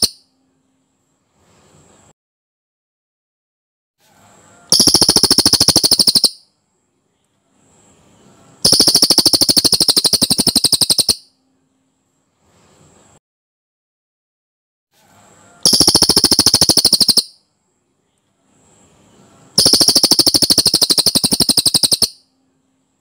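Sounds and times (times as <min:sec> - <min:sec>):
bird trilling: 0:04.7 - 0:06.4, 0:08.7 - 0:11.3, 0:15.6 - 0:17.4, 0:19.6 - 0:22.2.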